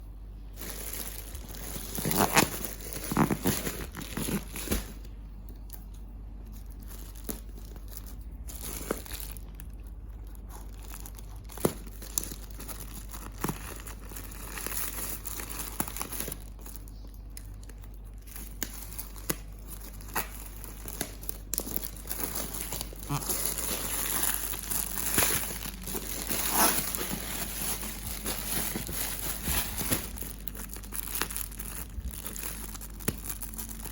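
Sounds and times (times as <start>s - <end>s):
packaging crinkling: 0.4s - 33.9s.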